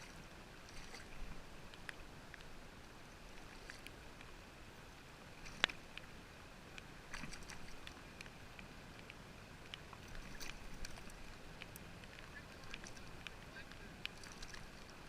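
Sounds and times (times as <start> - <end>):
faint steady hiss: 0.0 - 15.0
small clicks and taps: 6.8 - 14.7.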